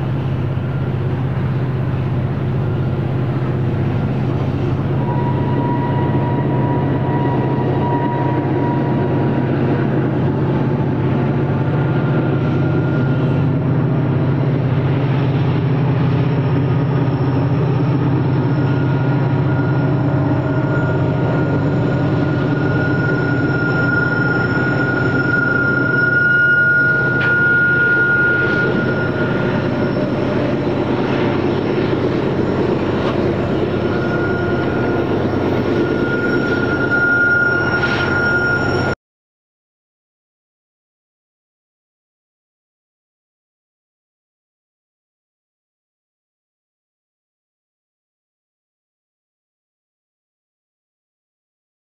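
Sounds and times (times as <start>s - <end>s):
diesel locomotives running: 0.0s - 39.0s
high-pitched squeal: 0.2s - 39.0s.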